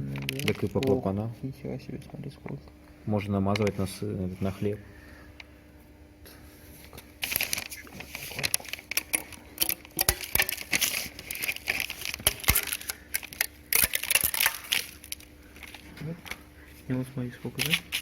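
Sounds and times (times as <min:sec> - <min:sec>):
crinkling and scraping: 0:00.0 - 0:01.2, 0:06.3 - 0:18.0.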